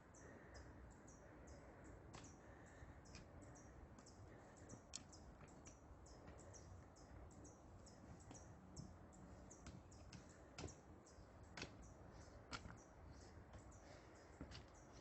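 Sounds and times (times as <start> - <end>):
faint high ticks: 3.0 - 9.0.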